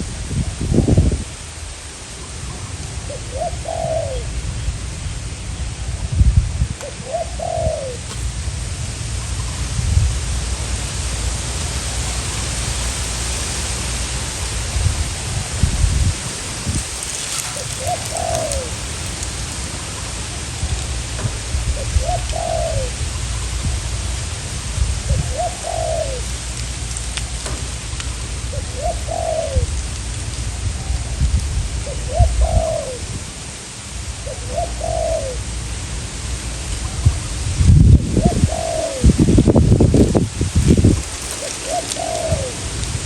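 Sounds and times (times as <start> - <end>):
wind buffeting microphone: 0.0 - 33.6, 36.5 - 43.0
dove cooing: 2.6 - 4.4, 6.8 - 8.5, 10.5 - 20.6, 21.8 - 23.5, 25.0 - 29.7, 31.8 - 33.1, 34.2 - 35.5, 38.1 - 43.0.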